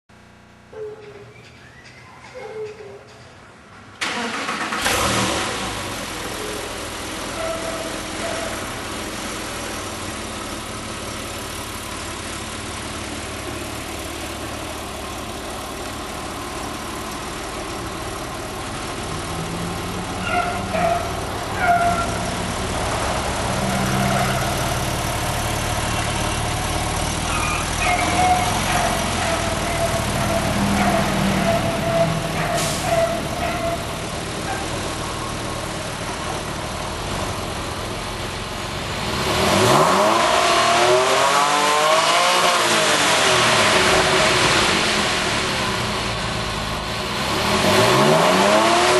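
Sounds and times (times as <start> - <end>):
car engine idling: 4.0 - 39.8
engine throttle blips: 17.3 - 37.8.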